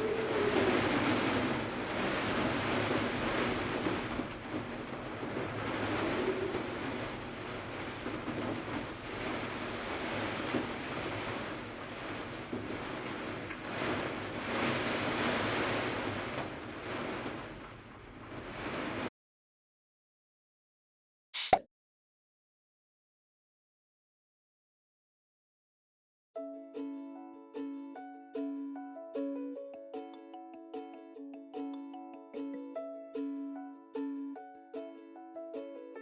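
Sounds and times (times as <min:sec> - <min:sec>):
wind gusting: 0:00.0 - 0:19.1.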